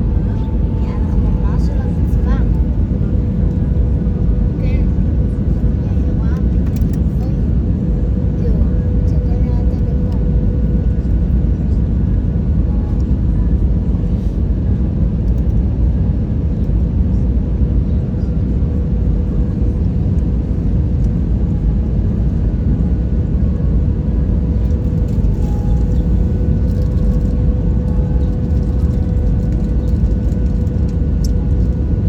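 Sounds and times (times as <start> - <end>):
airplane cabin rumble: 0.0 - 32.0.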